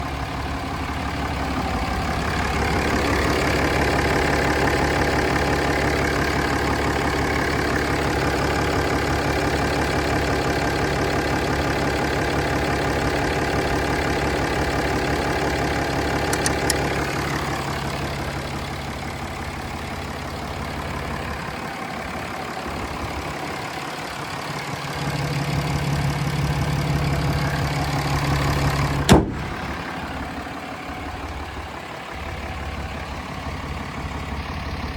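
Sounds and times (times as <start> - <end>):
diesel truck engine idling: 0.0 - 34.9
sharp knock: 29.1 - 29.6.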